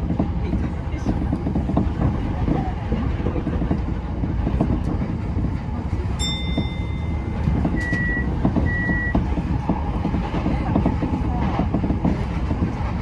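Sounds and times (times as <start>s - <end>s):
train wheels rumbling on track: 0.0s - 13.0s
short beeps: 6.2s - 9.2s.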